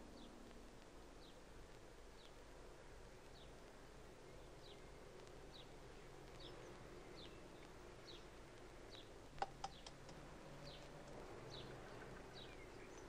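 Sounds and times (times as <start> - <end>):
sharp taps: 9.4 - 10.2.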